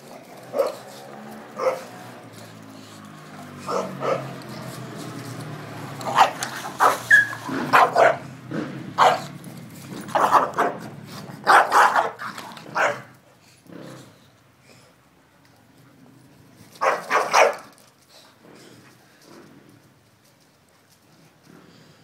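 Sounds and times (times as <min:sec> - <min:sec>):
dogs barking in play: 0:00.0 - 0:14.2, 0:16.3 - 0:17.9.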